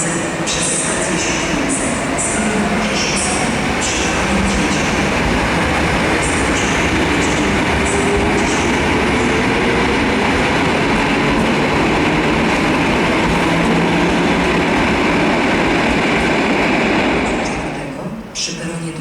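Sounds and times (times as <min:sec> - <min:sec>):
train wheels rumbling: 0:00.0 - 0:18.3.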